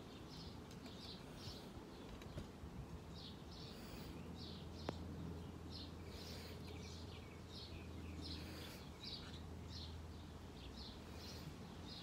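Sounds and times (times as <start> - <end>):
faint high bird chirps: 3.1 - 12.0.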